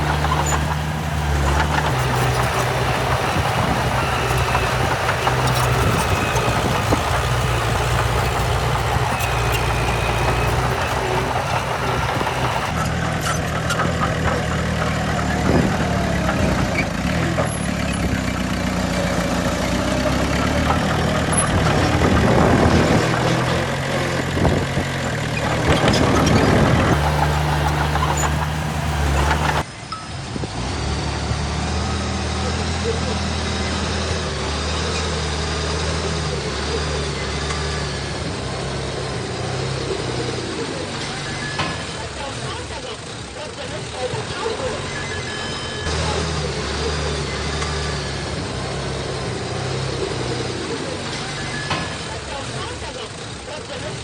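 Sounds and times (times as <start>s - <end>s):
heavy diesel machinery engines: 0.0s - 29.7s.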